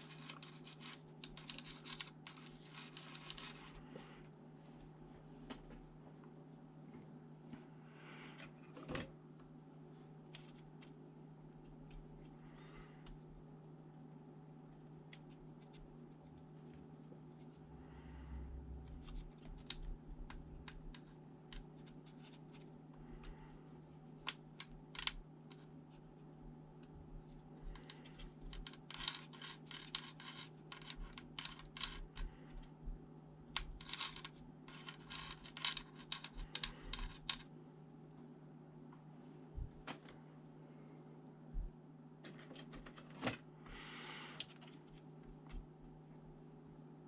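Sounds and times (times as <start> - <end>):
steady low hum: 0.0 - 47.0
small tools clicking on laptop parts: 27.4 - 32.8, 33.5 - 37.4.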